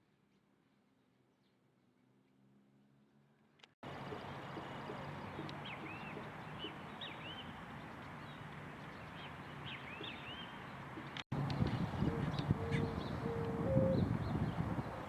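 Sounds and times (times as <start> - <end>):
small birds chirping: 3.8 - 15.0.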